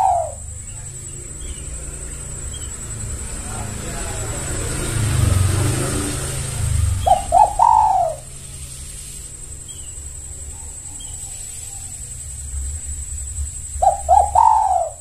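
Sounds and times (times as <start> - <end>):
dove cooing: 0.0 - 4.6, 5.3 - 8.4, 13.2 - 15.0
steady low rumble: 11.7 - 15.0.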